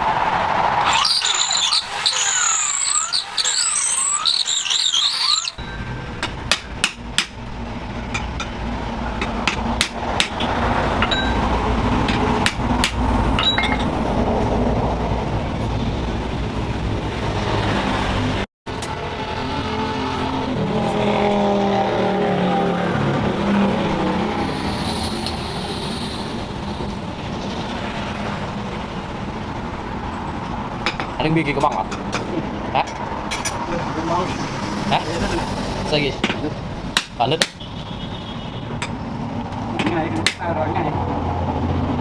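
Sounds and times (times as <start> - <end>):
high squealing grind: 0.8 - 6.0, 24.3 - 28.0
low motor drone: 23.8 - 27.8.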